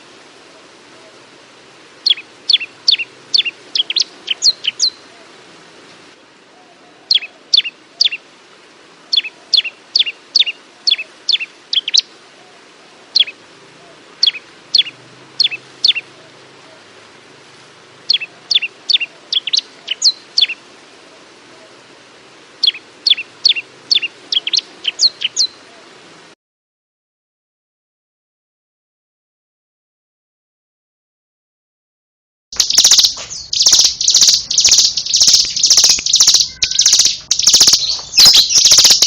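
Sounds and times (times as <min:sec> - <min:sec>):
prinia singing high notes: 0:32.6 - 0:39.0.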